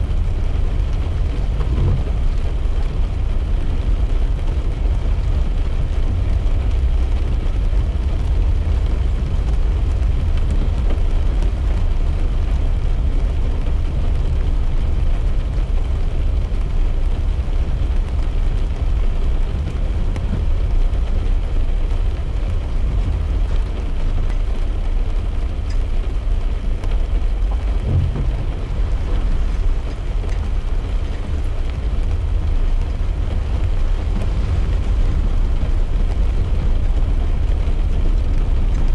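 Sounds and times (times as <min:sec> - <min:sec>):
tyres and engine rumble: 0:00.0 - 0:38.9
low bump: 0:27.5 - 0:37.9.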